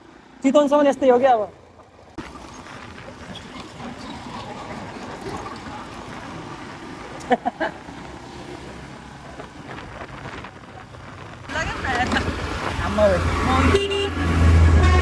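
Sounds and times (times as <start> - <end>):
wind and road noise: 0.0 - 15.0
motorcycle engine: 1.0 - 15.0.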